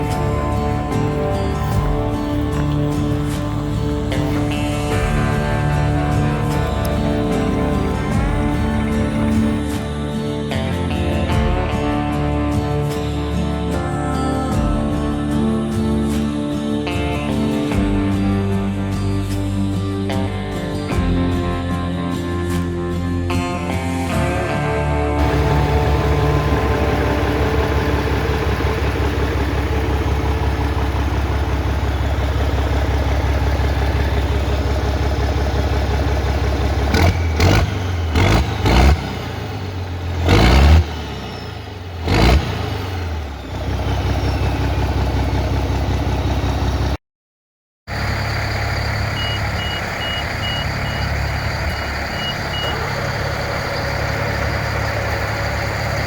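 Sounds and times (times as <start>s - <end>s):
engine knocks: 0.0s - 9.8s, 25.2s - 47.0s, 47.9s - 56.0s
vehicle engine running: 0.0s - 20.3s, 25.2s - 47.0s, 47.9s - 56.0s
reversing alarm beeping: 48.0s - 56.0s.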